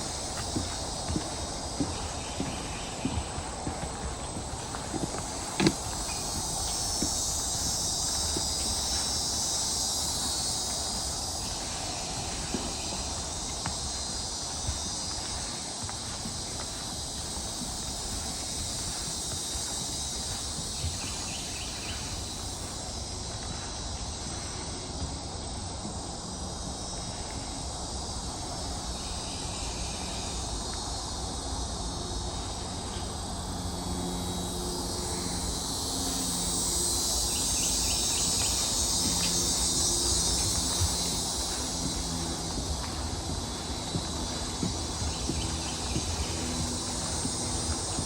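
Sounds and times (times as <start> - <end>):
high-pitched insect chorus: 0.0 - 48.0.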